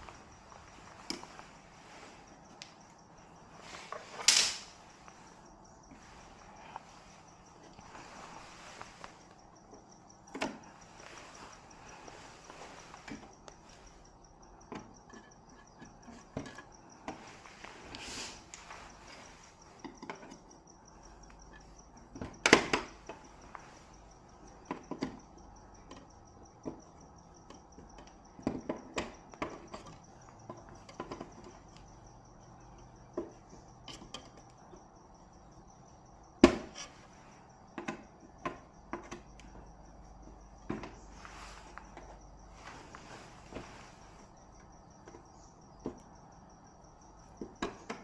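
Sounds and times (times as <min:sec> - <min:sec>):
clicks and knocks of handling: 0:00.0 - 0:03.0, 0:03.6 - 0:05.3, 0:05.9 - 0:14.0, 0:14.6 - 0:20.6, 0:21.2 - 0:31.9, 0:32.7 - 0:34.9, 0:37.7 - 0:39.7, 0:47.4 - 0:48.0
high pulsing insect trill: 0:00.0 - 0:48.0.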